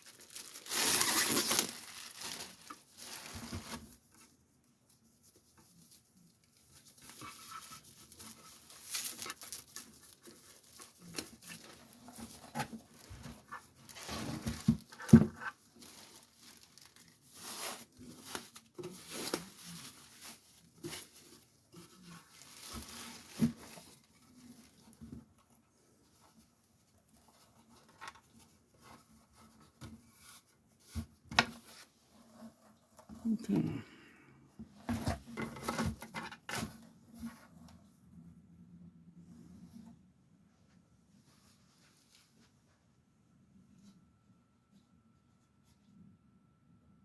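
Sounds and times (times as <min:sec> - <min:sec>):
packaging rustling and crinkling: 0:00.0 - 0:04.4, 0:05.7 - 0:33.6.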